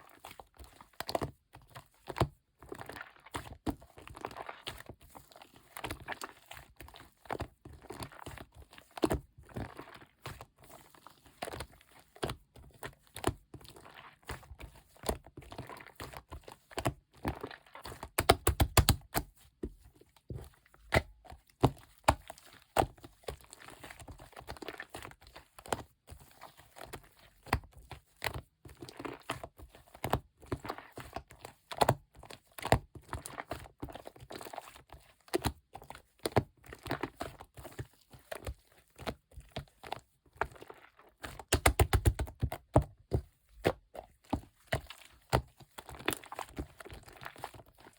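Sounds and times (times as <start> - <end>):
slime clicking and popping: 18.2 - 19.2, 41.4 - 42.5.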